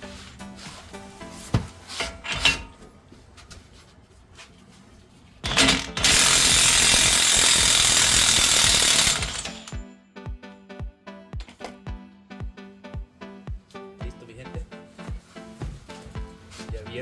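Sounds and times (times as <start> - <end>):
background music: 0.0 - 3.1, 9.0 - 17.0
metal clanks: 1.9 - 2.9, 5.4 - 6.5
impact wrench hammering: 5.4 - 9.8.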